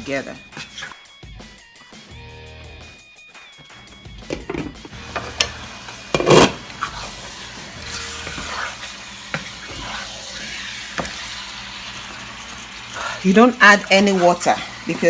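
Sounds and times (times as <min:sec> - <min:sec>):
chicken sizzling in oil: 0:04.9 - 0:15.0
utensil scraping a pan: 0:05.1 - 0:11.3, 0:12.9 - 0:15.0.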